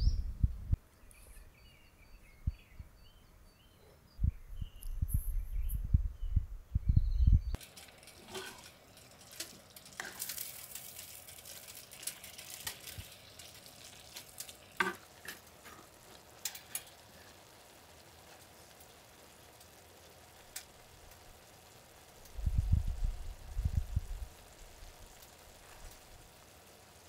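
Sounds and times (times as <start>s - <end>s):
sharp popping of frying food: 7.5s - 27.0s
food sizzling in a pan: 7.6s - 27.0s.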